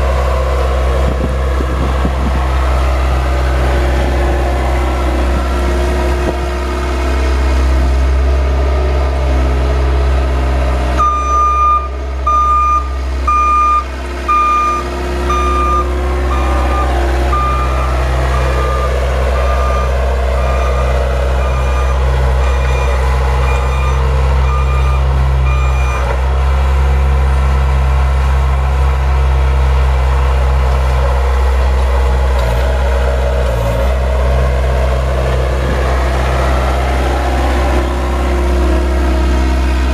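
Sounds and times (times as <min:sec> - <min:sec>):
vehicle engine running: 0:00.0 - 0:39.9
reversing alarm beeping: 0:11.0 - 0:26.1.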